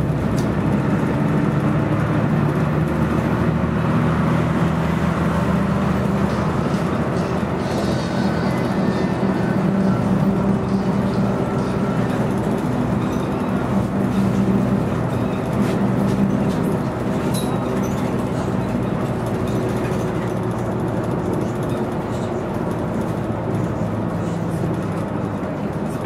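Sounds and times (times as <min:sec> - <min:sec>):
bus diesel engine running: 0:00.0 - 0:26.0.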